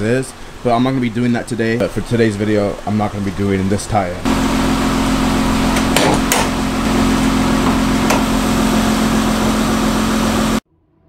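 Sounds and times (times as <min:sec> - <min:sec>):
constant hiss: 0:00.0 - 0:10.6
car engine idling: 0:04.2 - 0:10.6.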